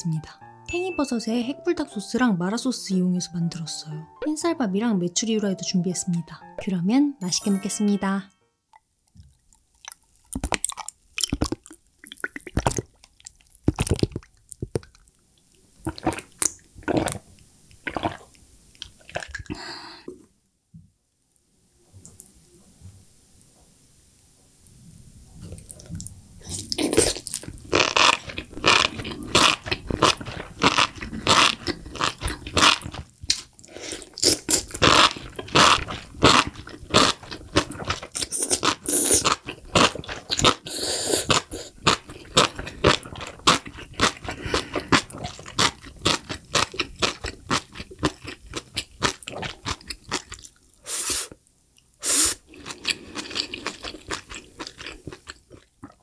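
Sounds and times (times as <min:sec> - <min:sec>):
wet chewing: 0:09.0 - 0:15.1, 0:25.6 - 0:51.4, 0:52.5 - 0:56.0
slurping food strands: 0:26.5 - 0:51.4.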